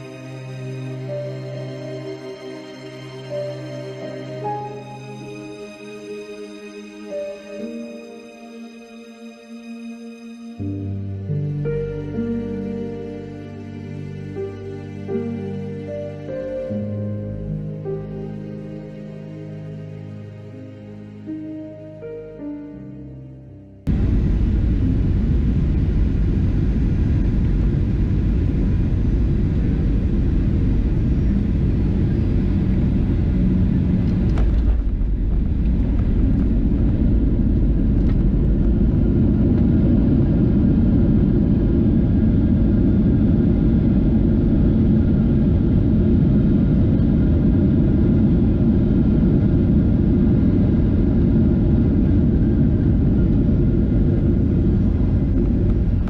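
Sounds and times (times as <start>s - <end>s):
jet airliner engines rumbling: 0.0s - 8.4s, 23.9s - 56.0s.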